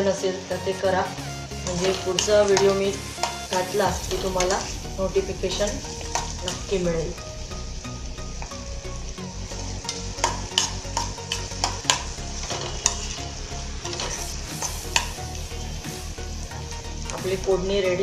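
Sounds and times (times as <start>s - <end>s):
onions sizzling in oil: 0.0s - 18.0s
spoon scraping metal pan: 9.8s - 15.3s.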